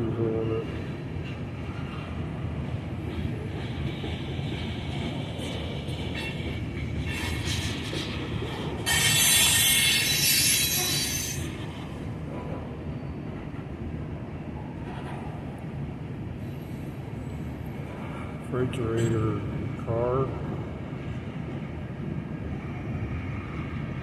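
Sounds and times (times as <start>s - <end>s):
freight train cars rumbling: 0.0s - 24.0s
train wheel squeal: 3.5s - 13.7s.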